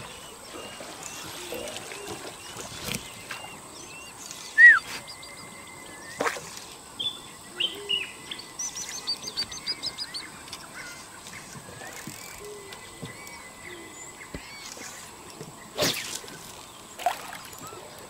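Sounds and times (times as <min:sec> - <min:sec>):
birds chirping and whistling: 0:00.0 - 0:06.3, 0:07.0 - 0:16.8.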